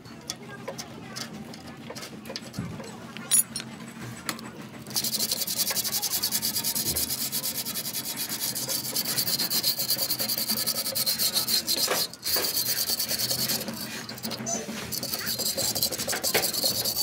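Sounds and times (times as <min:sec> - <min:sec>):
rapid scraping strokes on metal: 0:04.8 - 0:17.0.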